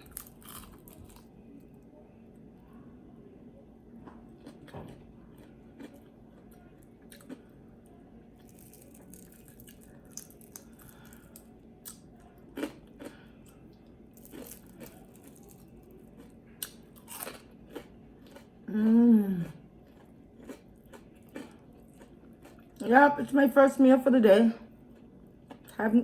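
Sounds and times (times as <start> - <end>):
person chewing food: 0.0 - 1.3, 4.0 - 7.7, 8.4 - 22.8, 24.8 - 25.8.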